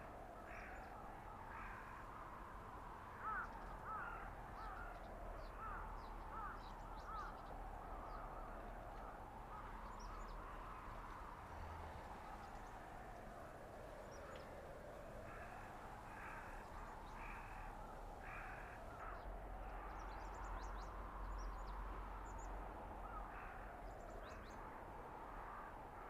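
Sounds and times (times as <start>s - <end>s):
howling blizzard wind: 0.0s - 26.0s.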